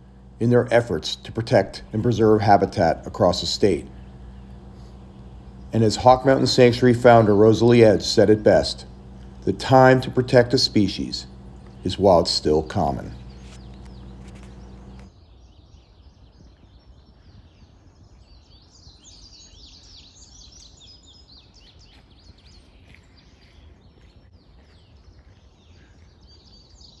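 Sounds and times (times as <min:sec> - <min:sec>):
low outdoor background rumble: 0:00.0 - 0:15.1
low steady hum: 0:00.0 - 0:15.1
songbirds singing and chirping: 0:00.0 - 0:27.0.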